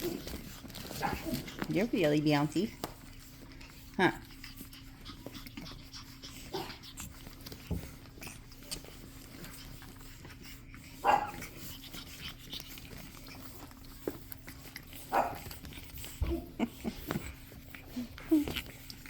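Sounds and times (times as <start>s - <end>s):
scuffling and clicking of play: 0.0s - 19.0s
puppy barking: 1.0s - 1.4s, 11.0s - 11.5s, 15.1s - 15.5s.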